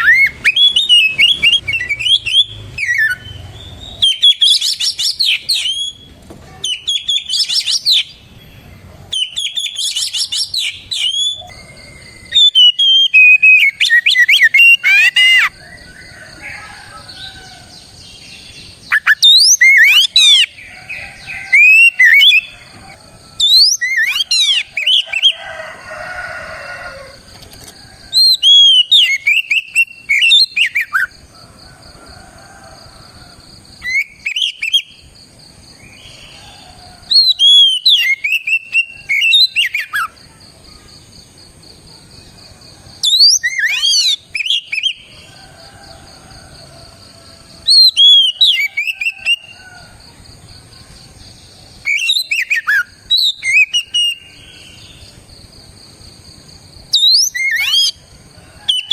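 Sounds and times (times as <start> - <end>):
bird singing whistled phrases: 0.0 - 8.2, 9.1 - 15.6, 18.9 - 20.6, 23.4 - 25.3, 28.2 - 31.1, 33.8 - 34.9, 37.1 - 40.1, 43.0 - 45.0, 51.8 - 54.3, 56.9 - 58.0.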